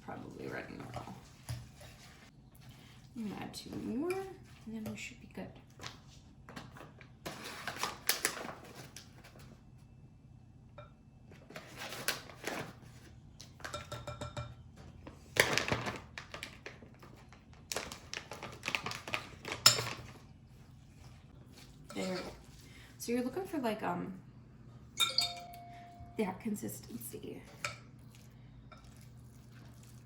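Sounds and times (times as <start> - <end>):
utensil scraping in a bowl: 0.1 - 5.2, 20.6 - 22.6
brief ringing tone: 25.0 - 26.2.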